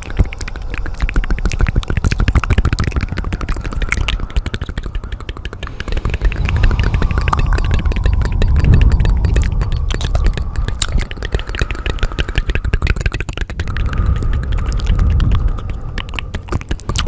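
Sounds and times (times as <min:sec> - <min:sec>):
deep rumble: 0:00.0 - 0:16.6
faint steady tone: 0:05.5 - 0:12.6.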